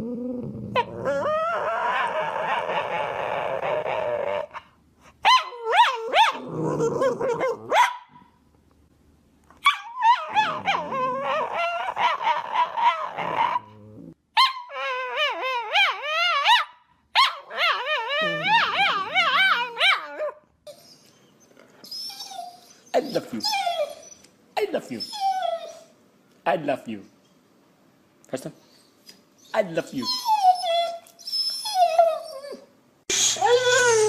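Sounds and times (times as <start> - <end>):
dog whining: 0.0 - 7.9, 9.6 - 26.0, 28.7 - 34.0.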